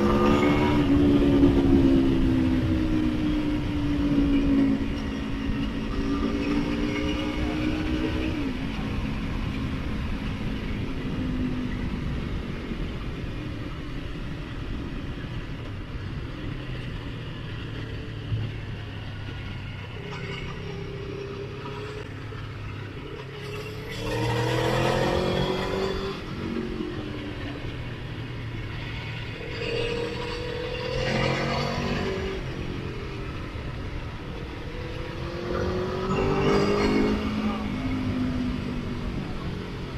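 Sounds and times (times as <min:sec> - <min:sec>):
motorcycle engine: 0:23.6 - 0:39.9.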